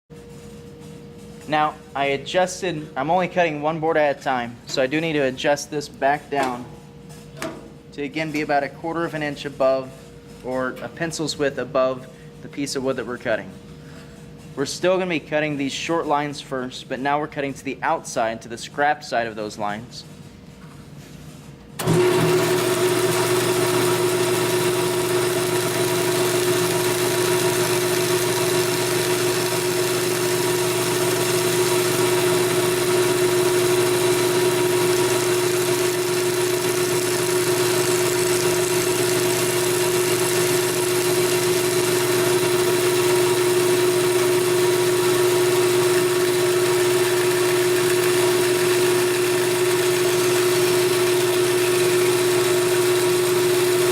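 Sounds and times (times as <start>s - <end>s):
bandsaw motor running: 21.8s - 53.9s.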